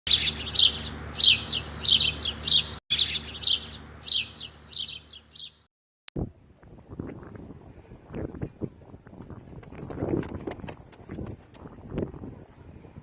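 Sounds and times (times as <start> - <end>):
bird chirping: 0.1 - 5.7.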